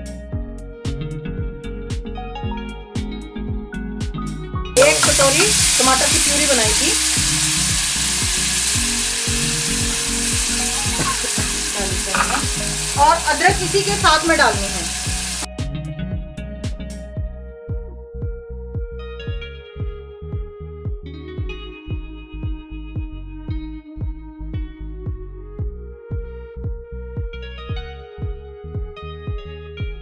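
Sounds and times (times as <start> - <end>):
electronic music with kick drum: 3.0 - 30.0
spices sizzling in oil: 4.8 - 15.5
spoon stirring and scraping: 7.0 - 13.0.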